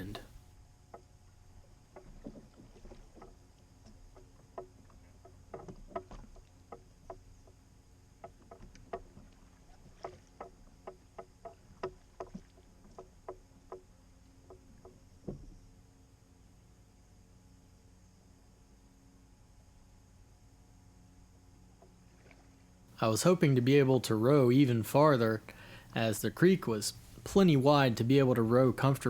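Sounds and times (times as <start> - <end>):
background hiss: 0.0 - 2.3, 15.0 - 29.0
wooden boat knocking on water: 0.9 - 15.7.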